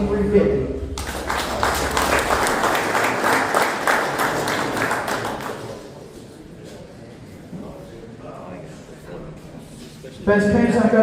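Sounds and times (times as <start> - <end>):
crowd applauding: 1.0 - 6.0.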